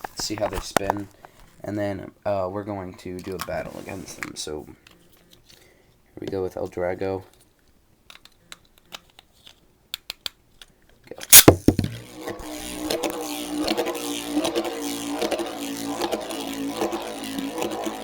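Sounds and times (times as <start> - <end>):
spinning top whirring: 11.3 - 18.0.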